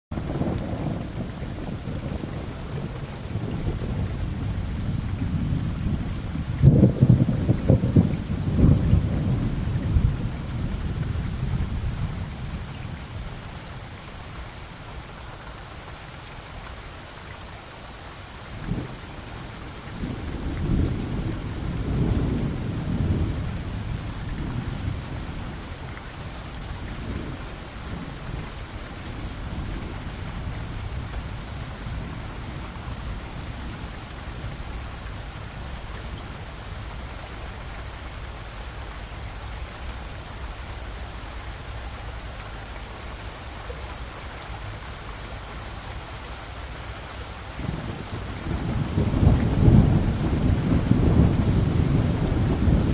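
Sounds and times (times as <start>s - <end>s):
thunder crack and rumble: 0.1s - 13.8s, 18.5s - 35.0s, 47.6s - 52.9s
heavy rain: 0.1s - 52.9s.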